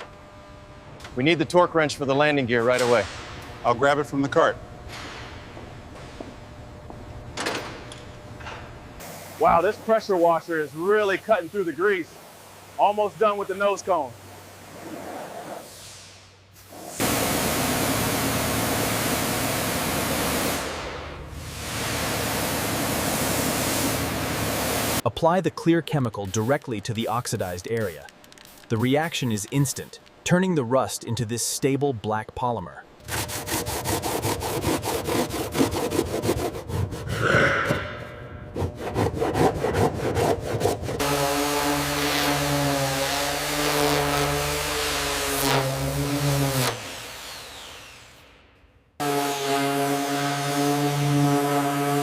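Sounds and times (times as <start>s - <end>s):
pressure washer spraying: 16.6s - 20.7s, 21.4s - 25.0s, 26.3s - 30.0s
rapid scraping strokes: 26.2s - 30.0s, 33.1s - 37.4s
machine hum: 32.8s - 46.4s.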